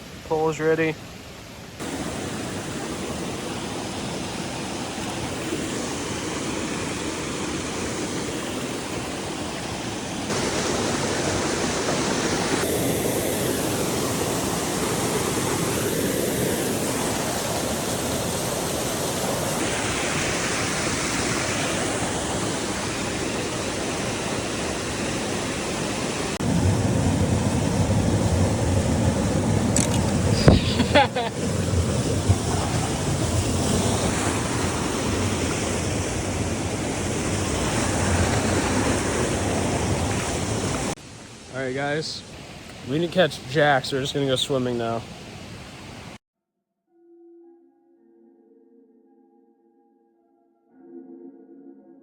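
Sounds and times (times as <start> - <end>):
brook rushing over rocks: 10.3 - 12.8, 16.9 - 46.1.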